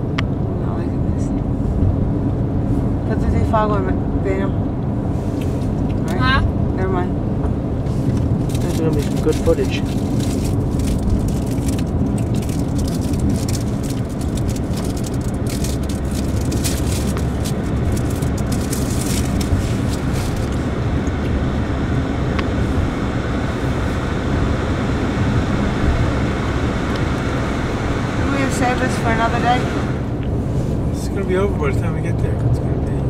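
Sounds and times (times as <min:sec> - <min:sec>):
car engine and tyres rumbling: 0:00.0 - 0:33.0
small crackles and ticks: 0:08.1 - 0:21.4.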